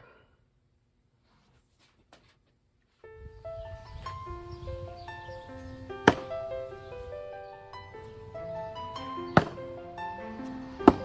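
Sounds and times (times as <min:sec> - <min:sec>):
background music: 0:03.4 - 0:11.0
hatchet striking wood: 0:06.0 - 0:06.3, 0:09.4 - 0:09.7.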